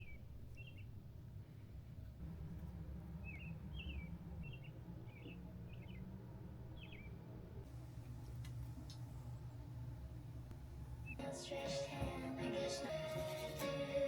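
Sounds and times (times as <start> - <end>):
small bird chirping: 0.0 - 1.7, 2.4 - 7.6, 10.9 - 11.3
faint low rumble: 0.0 - 12.5.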